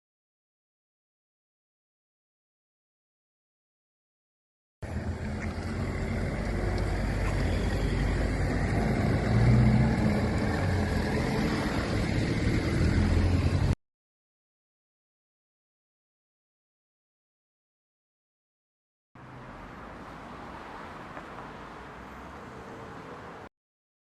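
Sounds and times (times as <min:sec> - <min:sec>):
car engine rumble: 0:04.8 - 0:13.8
road noise: 0:04.8 - 0:13.8, 0:19.2 - 0:23.5
wind: 0:04.8 - 0:13.8, 0:19.2 - 0:23.5.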